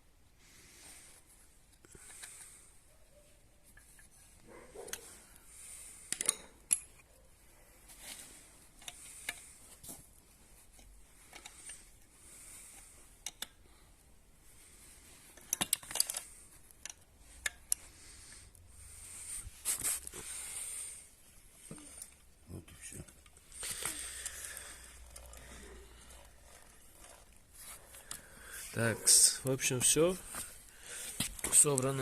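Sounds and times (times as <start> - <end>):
metal parts clicking and clinking: 6.1 - 7.2, 15.3 - 17.8, 22.8 - 28.2.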